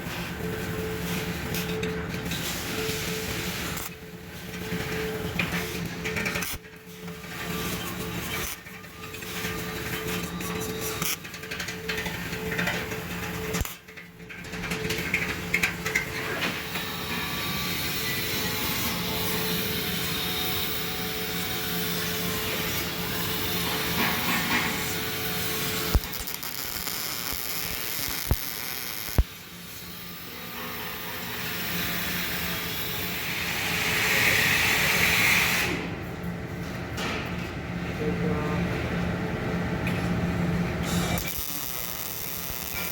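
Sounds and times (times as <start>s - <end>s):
welding arc crackling and hissing: 2.2s - 5.2s, 7.4s - 13.9s, 16.6s - 35.4s, 40.9s - 42.9s.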